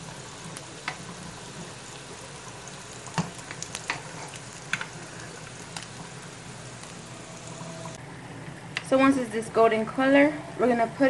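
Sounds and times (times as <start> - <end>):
food sizzling in oil: 0.0 - 8.0.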